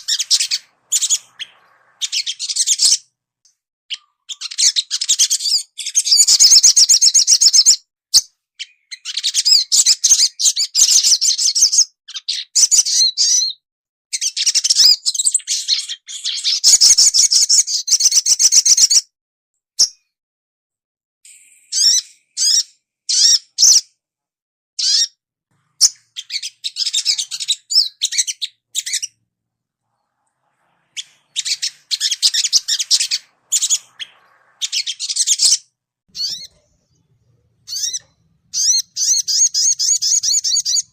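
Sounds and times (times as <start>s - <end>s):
bird twittering trills: 0.0s - 3.2s, 8.6s - 13.6s, 21.3s - 23.9s, 24.8s - 29.2s, 29.8s - 40.9s.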